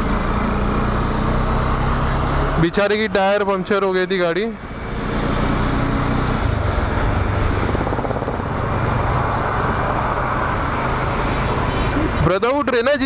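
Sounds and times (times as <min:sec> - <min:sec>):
wind and road noise: 0:00.0 - 0:13.0
motorcycle engine running: 0:04.6 - 0:12.2.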